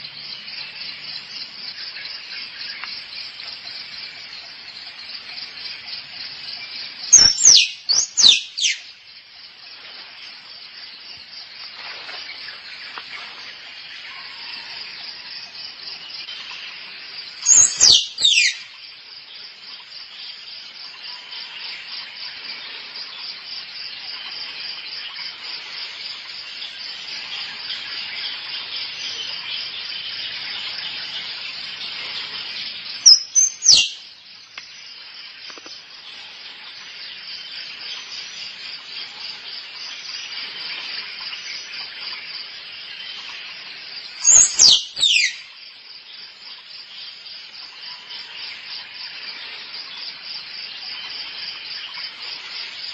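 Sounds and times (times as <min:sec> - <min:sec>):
squirrel calls: 0:07.1 - 0:08.8, 0:17.4 - 0:18.7, 0:33.0 - 0:34.0, 0:44.2 - 0:45.5.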